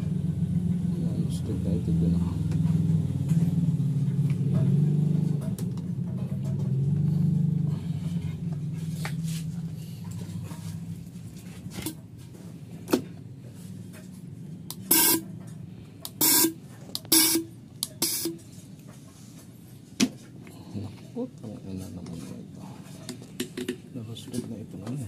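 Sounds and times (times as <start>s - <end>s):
motor low hum: 0.0s - 18.7s.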